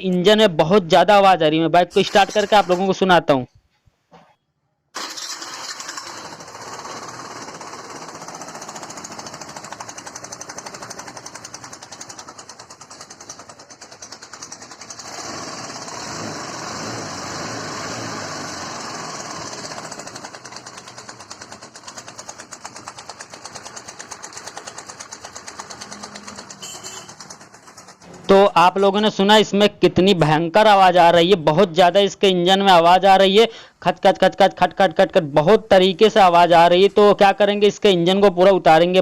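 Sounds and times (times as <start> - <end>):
scooter engine clattering knock: 7.8 - 15.0.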